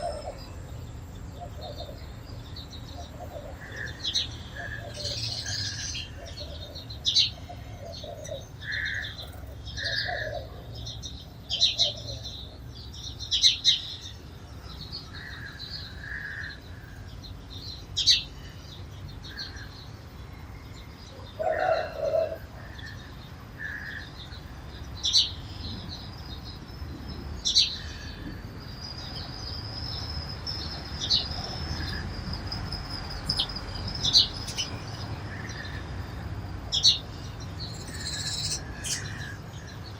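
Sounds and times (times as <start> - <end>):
sparrows chirping: 0.0 - 39.9
lower bird call: 36.8 - 39.8.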